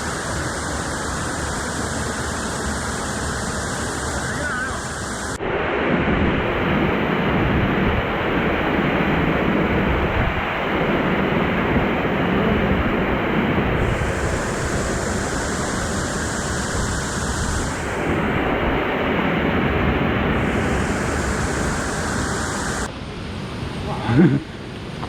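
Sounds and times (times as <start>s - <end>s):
bright hiss: 0.0s - 5.4s, 13.1s - 19.3s, 20.3s - 22.9s
waterfall and stream rushing: 0.0s - 23.9s.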